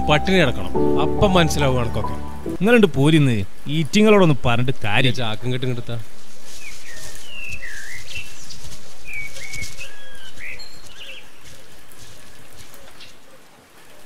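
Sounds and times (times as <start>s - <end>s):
birds chirping: 6.6s - 13.3s.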